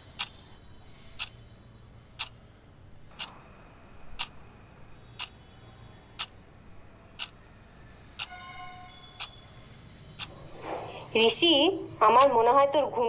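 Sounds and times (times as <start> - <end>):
clock ticking: 1.2 - 1.4, 2.2 - 2.4, 3.1 - 3.4, 5.2 - 5.4, 7.2 - 7.4, 8.2 - 8.4, 12.1 - 12.5.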